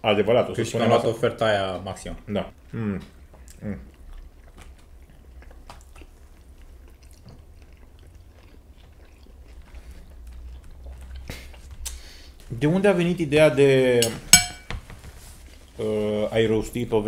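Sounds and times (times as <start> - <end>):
people chewing crispy food: 2.5 - 12.6.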